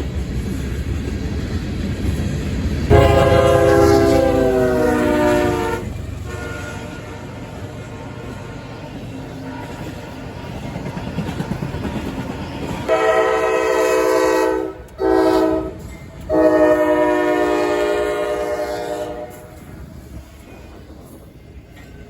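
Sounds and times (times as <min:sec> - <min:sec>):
train rumbling along track: 0:00.0 - 0:22.0
locomotive chime horn: 0:02.9 - 0:08.7, 0:12.9 - 0:19.6.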